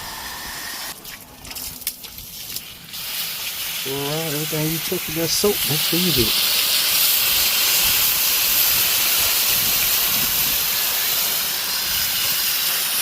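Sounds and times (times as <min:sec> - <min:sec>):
pressure washer spray hissing: 0:02.8 - 0:13.0.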